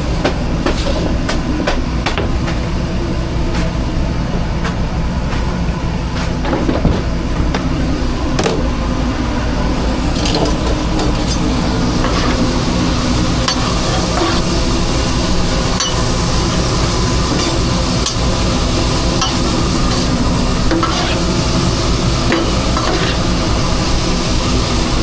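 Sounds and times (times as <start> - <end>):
steady mechanical hum: 0.0 - 25.0
food frying on a grill: 10.0 - 25.0.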